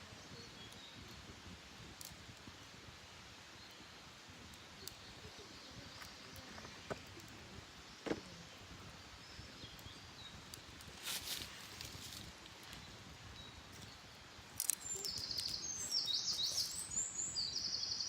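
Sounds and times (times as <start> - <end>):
birds singing: 0.0 - 1.3, 3.5 - 18.0
campfire crackling: 0.0 - 17.9.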